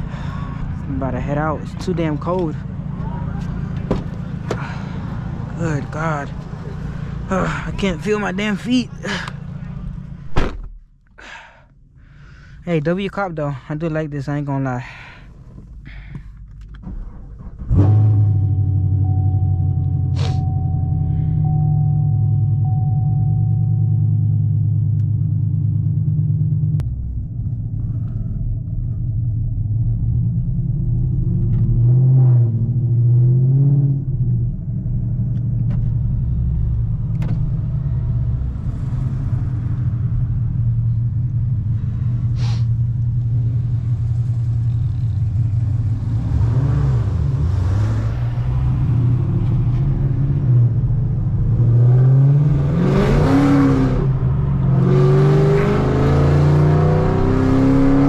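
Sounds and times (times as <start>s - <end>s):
car engine rumbling and revving: 0.0s - 58.0s.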